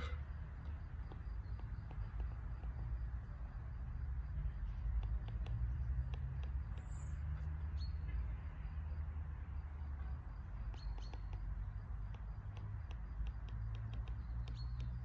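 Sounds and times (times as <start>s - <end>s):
faint bird chirps: 0.0s - 0.2s, 10.6s - 11.8s, 13.9s - 15.0s
light ticks: 4.6s - 7.6s, 9.9s - 15.0s.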